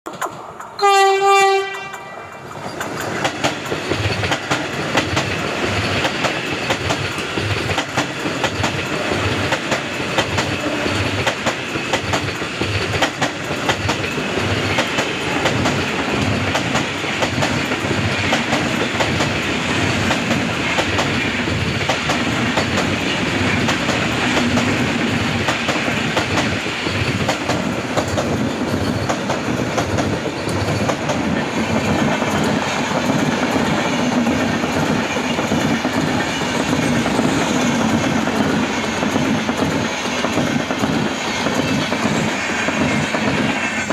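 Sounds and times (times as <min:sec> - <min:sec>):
train wheels rushing on rails: 0:00.1 - 0:43.9
train horn: 0:00.8 - 0:02.4
wheels clacking over rail joints: 0:01.8 - 0:43.9.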